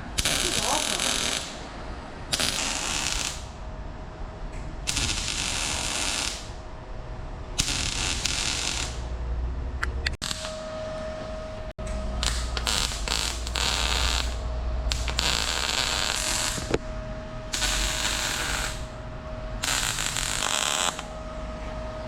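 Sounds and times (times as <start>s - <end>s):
welder crackling: 0.0s - 3.6s, 4.9s - 6.7s, 7.6s - 9.2s, 9.8s - 10.8s, 11.8s - 16.9s, 17.5s - 19.0s, 19.6s - 21.2s.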